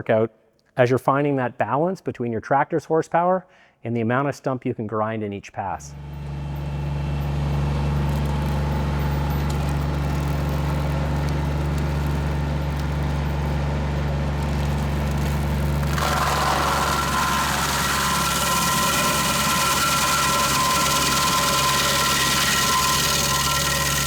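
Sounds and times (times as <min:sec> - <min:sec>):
tractor engine running: 0:05.9 - 0:24.0.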